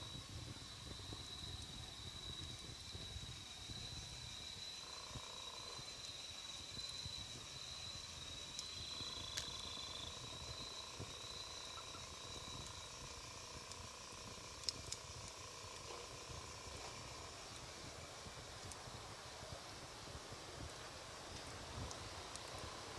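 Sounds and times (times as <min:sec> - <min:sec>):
high insect trill: 0:00.0 - 0:20.1
campfire crackling and popping: 0:08.5 - 0:19.0, 0:20.1 - 0:22.7.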